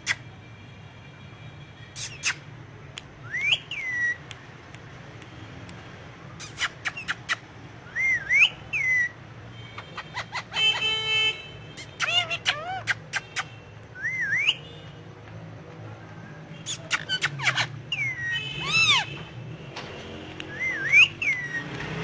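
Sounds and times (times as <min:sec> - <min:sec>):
buzzy rasping parakeet call: 0:09.8 - 0:11.1, 0:11.8 - 0:13.6
parakeet swooping whistles: 0:20.5 - 0:21.7.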